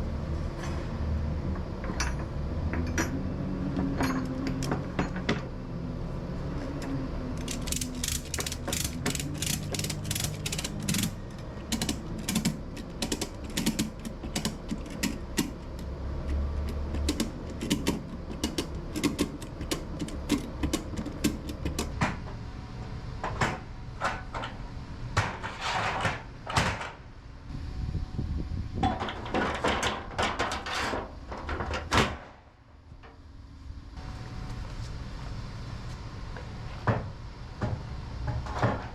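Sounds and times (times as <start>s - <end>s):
ratchet strap clicking: 7.4s - 21.9s
ratchet strap rattling: 7.4s - 21.9s.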